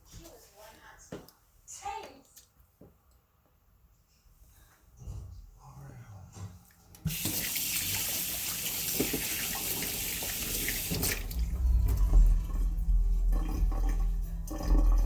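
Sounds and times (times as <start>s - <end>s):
running water hissing: 7.0s - 11.8s
deep low rumble: 11.1s - 15.0s.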